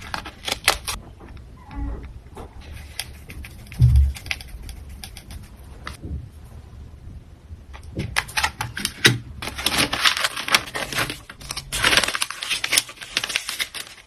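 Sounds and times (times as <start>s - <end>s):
packing materials crinkling: 0.0s - 1.0s, 8.2s - 14.0s.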